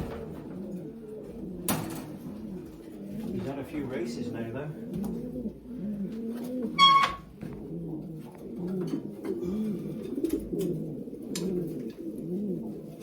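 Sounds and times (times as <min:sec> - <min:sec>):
pigeons cooing: 0:00.0 - 0:13.0
high-pitched squeak: 0:06.8 - 0:07.3.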